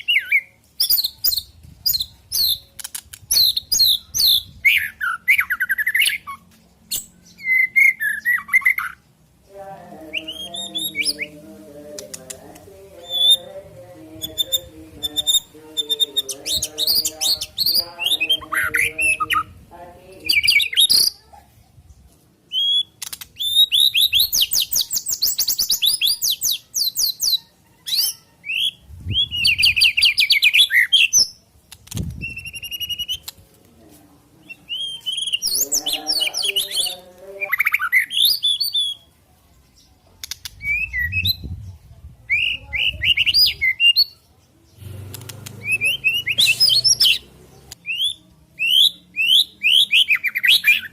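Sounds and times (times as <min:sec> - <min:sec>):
songbird whistles and trills: 0:00.0 - 0:09.0, 0:13.0 - 0:13.5, 0:22.5 - 0:33.4, 0:34.4 - 0:35.6, 0:37.5 - 0:39.1, 0:40.2 - 0:41.7, 0:42.3 - 0:44.2, 0:45.5 - 0:50.9.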